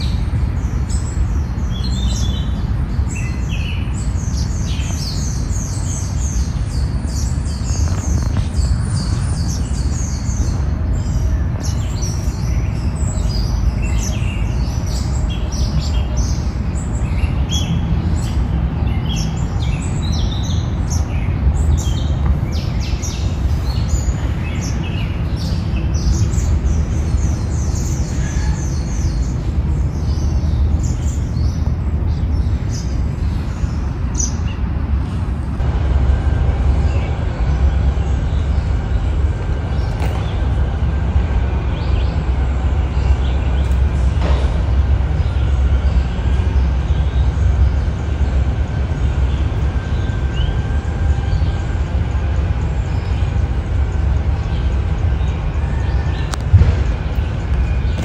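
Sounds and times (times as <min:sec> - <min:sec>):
birds chirping: 0:00.0 - 0:58.0
steady low rumble: 0:00.0 - 0:58.0.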